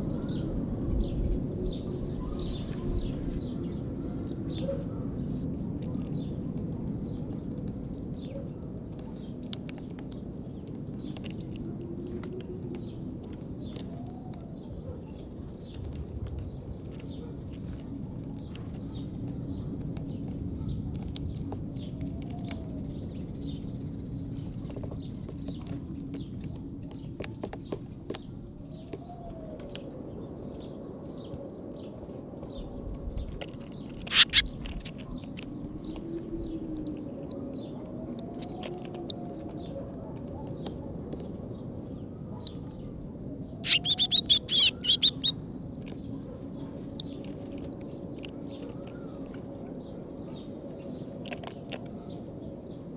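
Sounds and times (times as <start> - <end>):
faint outdoor hum: 5.6 - 52.9
small birds calling: 5.7 - 39.8, 40.4 - 42.6, 43.5 - 52.9
wing flutters: 34.0 - 39.1, 43.6 - 47.8.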